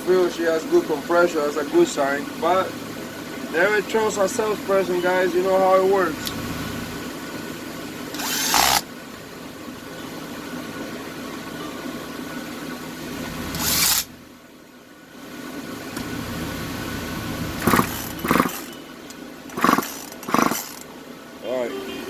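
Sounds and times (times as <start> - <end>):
steady hum: 0.0 - 22.0
chainsaw recoil starter pulled: 8.1 - 8.8, 13.6 - 14.1, 17.6 - 18.7, 19.5 - 20.9.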